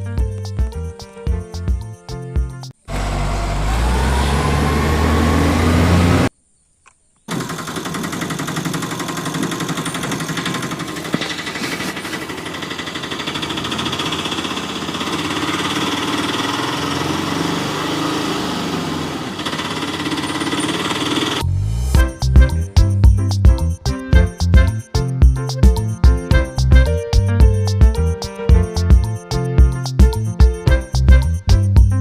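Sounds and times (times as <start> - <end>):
rapid mechanical rattling: 7.3 - 17.5, 19.1 - 21.4.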